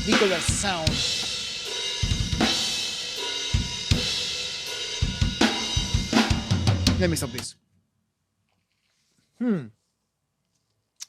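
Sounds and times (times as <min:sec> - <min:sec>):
washing cymbals: 0:00.0 - 0:07.4
metal band recording: 0:00.0 - 0:07.5.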